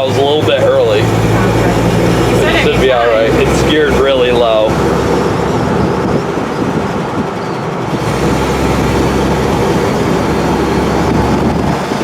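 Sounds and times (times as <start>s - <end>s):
road noise: 0.0s - 12.0s
steady low drone: 0.0s - 12.0s
truck engine running: 0.0s - 12.0s.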